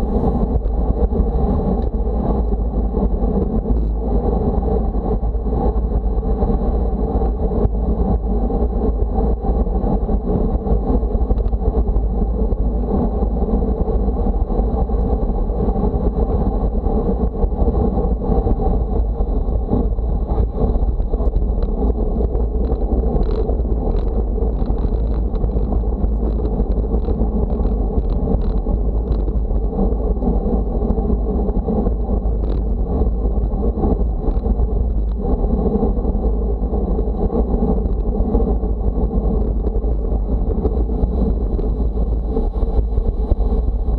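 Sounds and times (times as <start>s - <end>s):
low rumble of motion noise: 0.0s - 43.9s
wind buffeting microphone: 0.0s - 43.9s.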